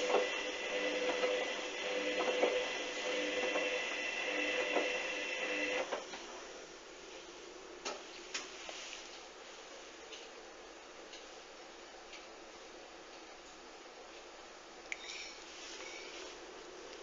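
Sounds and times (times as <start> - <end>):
washing machine motor whine: 0.0 - 6.7.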